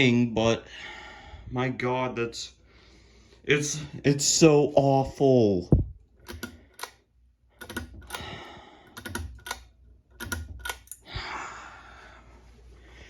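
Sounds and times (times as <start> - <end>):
irregular light clicks: 6.2 - 11.1.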